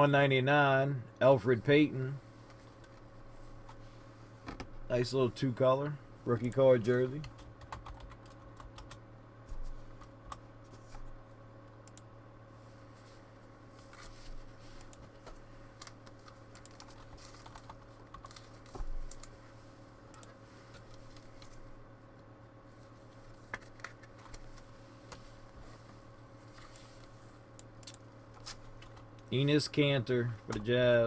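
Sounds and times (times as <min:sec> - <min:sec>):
steady low hum: 0:00.0 - 0:31.0
trading cards handled by hand: 0:22.8 - 0:27.2.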